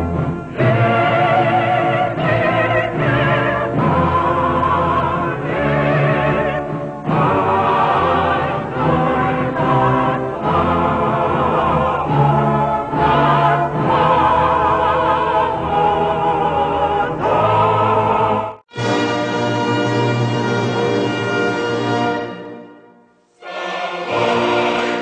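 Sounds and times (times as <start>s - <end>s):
choir singing held notes: 0.0s - 22.6s, 23.3s - 25.0s.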